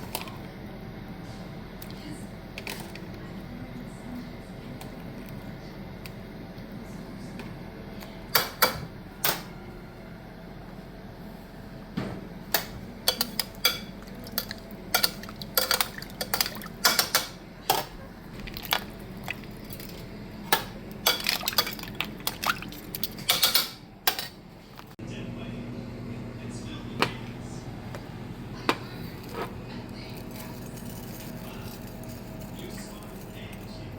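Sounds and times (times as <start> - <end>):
utensils clinking against cookware: 12.6 - 24.4.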